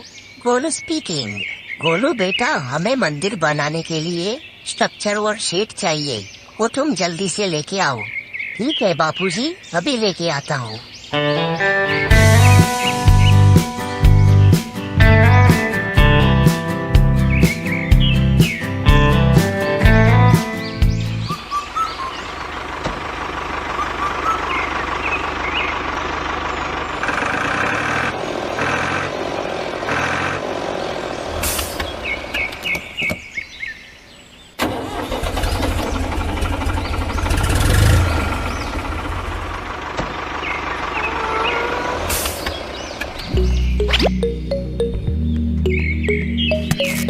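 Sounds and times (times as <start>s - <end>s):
truck engine running: 12.1s - 33.0s, 34.6s - 47.0s.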